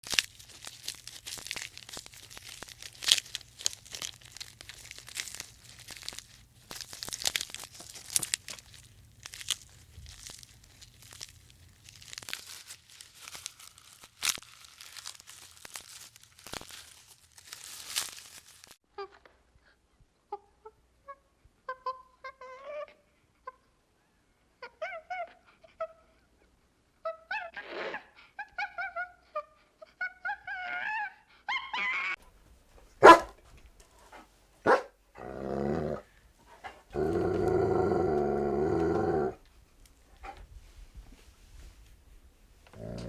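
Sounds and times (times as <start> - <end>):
crunching and tearing noises: 0.0 - 18.8, 37.0 - 39.4, 42.7 - 43.0.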